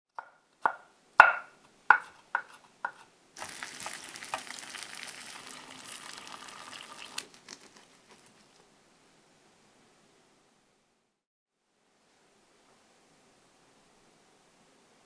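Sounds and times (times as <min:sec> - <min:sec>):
food sizzling in oil: 0:02.0 - 0:08.6.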